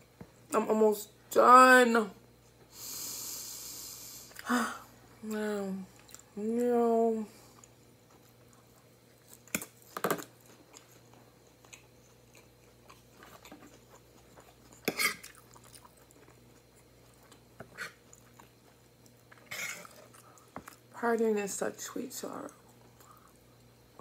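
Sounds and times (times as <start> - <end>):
close-up chewing: 7.5 - 20.9.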